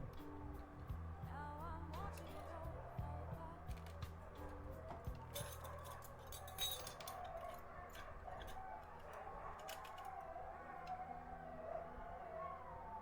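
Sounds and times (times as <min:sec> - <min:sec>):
small metal clicks and taps: 0:03.7 - 0:10.2.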